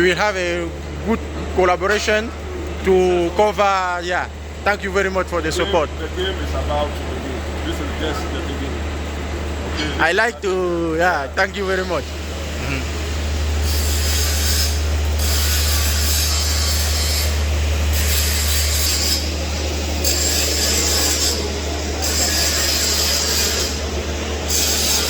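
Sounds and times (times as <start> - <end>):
steady low hum: 0.0 - 25.0
arc welding crackling and hissing: 11.6 - 25.0.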